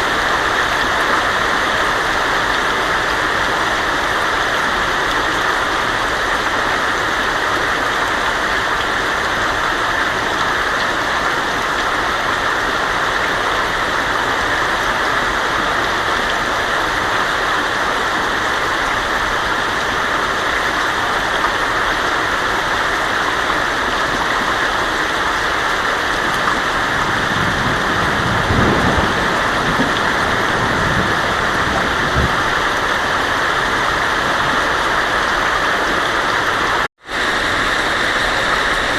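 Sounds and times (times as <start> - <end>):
heavy rain on a tin roof: 0.0 - 38.9
thunder rumbling: 26.6 - 33.4.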